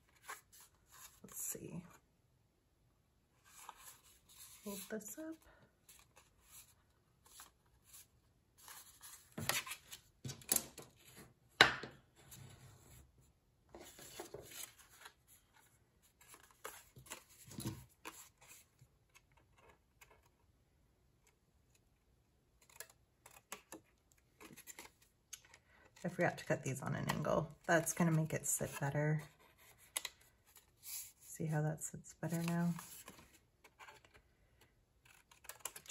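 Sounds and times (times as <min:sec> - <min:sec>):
paper rustling: 0:32.3 - 0:34.2.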